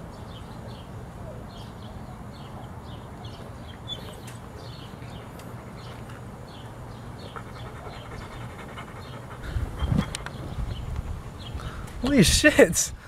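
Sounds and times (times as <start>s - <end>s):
small bird chirping: 1.5s - 11.7s.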